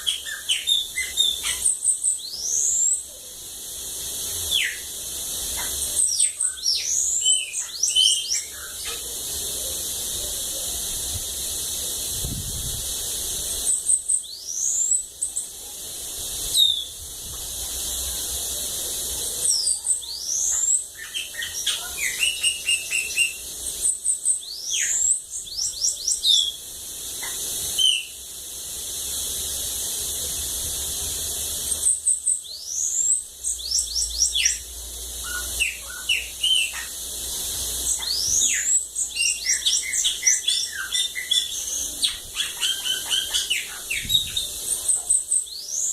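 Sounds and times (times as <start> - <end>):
bird singing: 0.0 - 3.1, 3.8 - 9.9, 13.6 - 15.5, 16.5 - 17.0, 19.4 - 28.2, 31.7 - 45.9
steady high hiss: 0.0 - 45.9.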